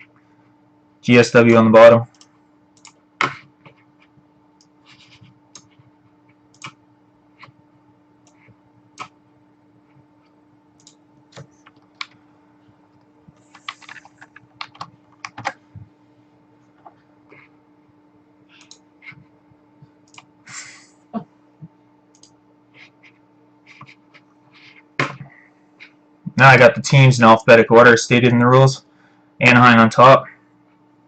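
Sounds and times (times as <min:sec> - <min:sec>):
low electrical hum: 0:00.0 - 0:31.0
computer keyboard clicks: 0:02.1 - 0:03.0, 0:06.6 - 0:06.8, 0:13.4 - 0:15.6.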